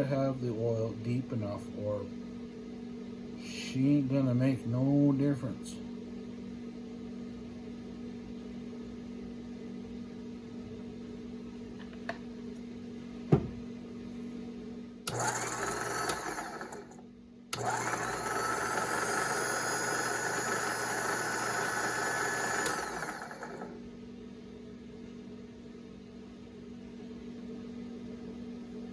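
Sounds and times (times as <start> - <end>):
winch electric motor running: 15.1 - 23.8.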